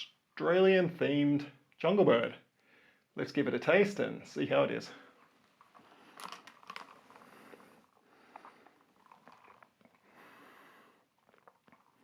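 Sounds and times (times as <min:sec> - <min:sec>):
soft breath: 0:02.6 - 0:03.1, 0:07.0 - 0:08.9, 0:09.9 - 0:11.2
person sipping from a glass: 0:05.7 - 0:12.0.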